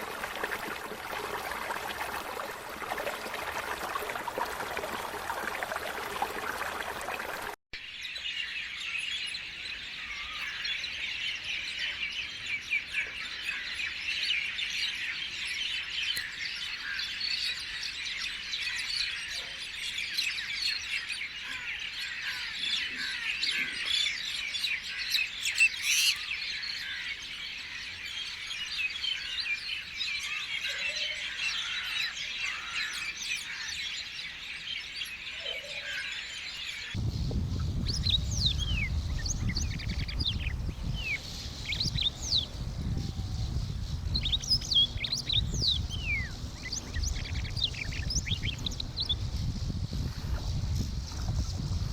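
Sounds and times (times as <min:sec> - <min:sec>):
rushing water-like noise: 0:00.0 - 0:07.6
many birds chirping and squawking: 0:08.3 - 0:51.7.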